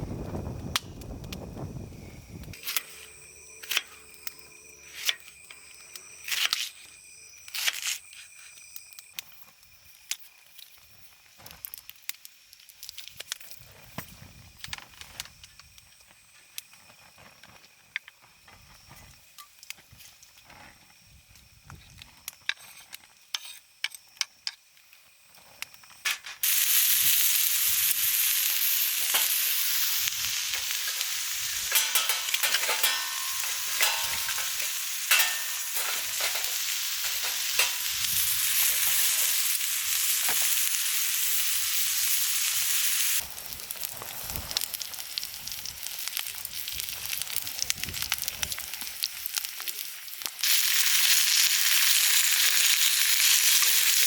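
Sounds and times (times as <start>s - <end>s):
food sizzling in a pan: 26.4s - 54.0s.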